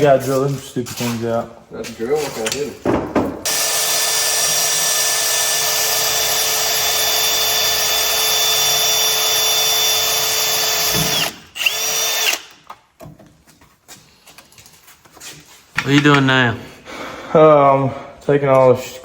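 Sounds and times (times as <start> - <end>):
electric drill running: 3.5 - 12.6.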